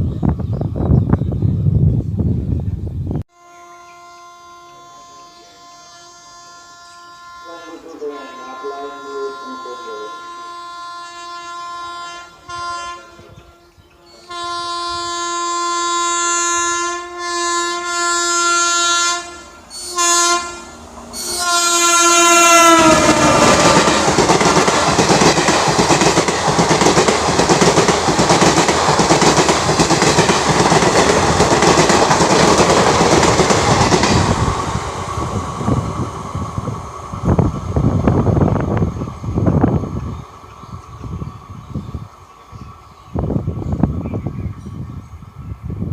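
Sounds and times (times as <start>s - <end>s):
train horn blasts: 3.3s - 24.7s
train wheels clattering: 22.7s - 34.7s.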